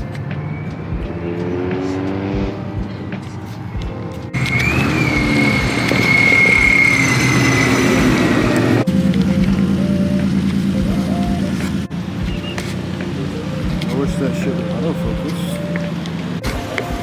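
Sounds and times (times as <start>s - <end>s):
car engines revving: 0.1s - 17.0s
high steady whine: 3.8s - 17.0s.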